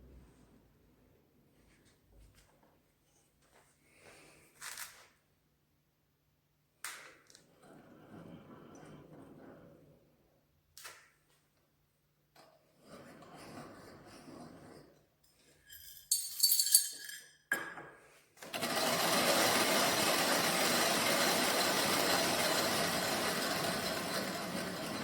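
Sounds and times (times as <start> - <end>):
metallic clinks and rattles: 15.4 - 17.6
coffee mill grinding: 18.6 - 25.0.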